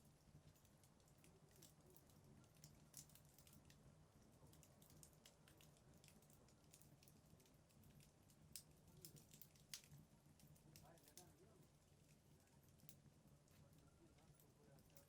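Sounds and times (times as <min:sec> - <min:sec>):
faint low hum: 0:00.0 - 0:15.0
fireplace fire crackling: 0:00.0 - 0:15.0
small fire pops: 0:00.0 - 0:15.0.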